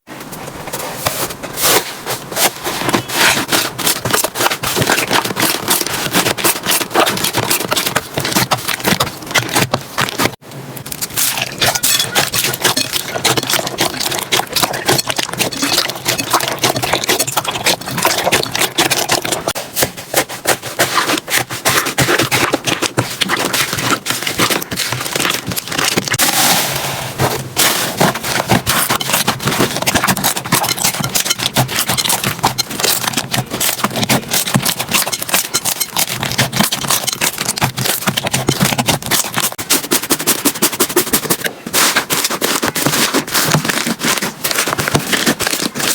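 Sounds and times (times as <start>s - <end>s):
slime crackling and popping: 3.1s - 19.6s, 20.4s - 26.8s.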